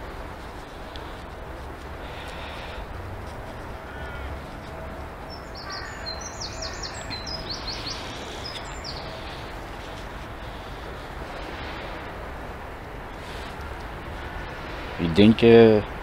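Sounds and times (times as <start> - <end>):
birds chirping: 2.0 - 11.9.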